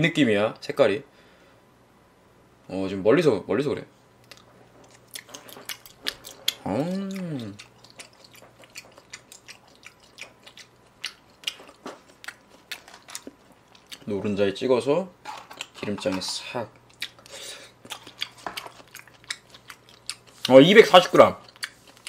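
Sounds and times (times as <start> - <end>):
close chewing with wet mouth clicks: 4.2 - 14.1, 16.8 - 20.6, 21.4 - 22.0
person humming mm: 6.6 - 7.6.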